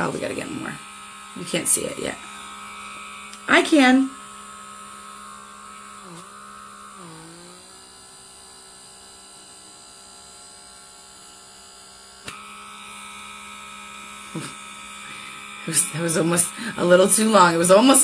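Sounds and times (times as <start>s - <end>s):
small vacuum motor humming: 0.0s - 18.0s
click: 3.3s - 3.5s.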